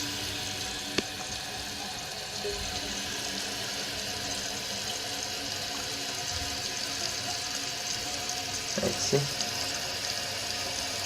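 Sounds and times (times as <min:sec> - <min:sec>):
toilet tank refilling: 0:00.0 - 0:11.0.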